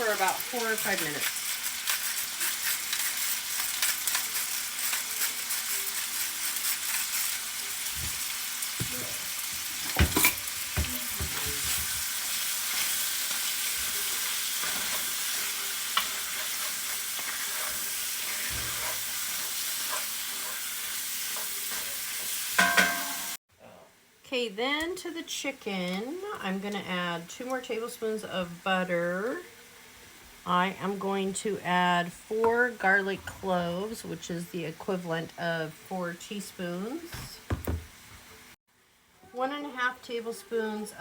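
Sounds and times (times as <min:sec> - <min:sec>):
chicken sizzling in a skillet: 0:00.0 - 0:23.4, 0:27.2 - 0:31.6.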